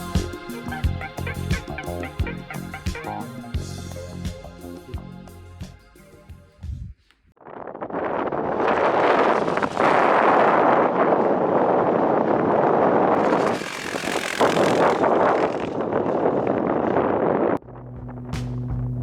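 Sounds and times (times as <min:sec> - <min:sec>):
motorcycle running: 0:00.0 - 0:04.4, 0:12.6 - 0:19.0
wind noise on microphone: 0:00.0 - 0:05.6, 0:06.3 - 0:19.0.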